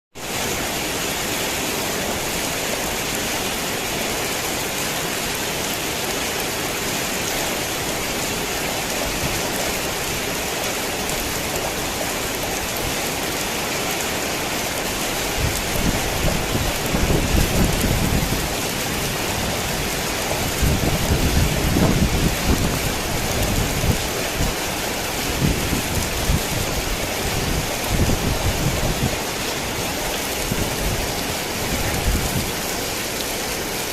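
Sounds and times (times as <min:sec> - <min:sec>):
heavy rain hissing: 0:00.2 - 0:33.9
low rolling thunder: 0:15.4 - 0:24.6, 0:25.2 - 0:32.8.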